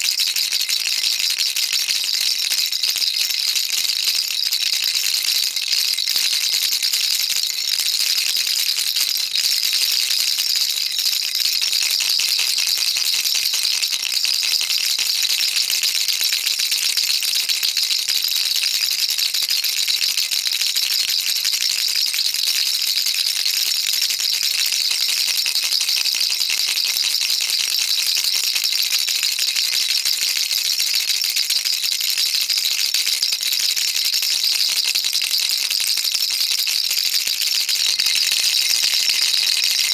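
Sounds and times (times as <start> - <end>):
baby rattle shaking: 37.6 - 39.9.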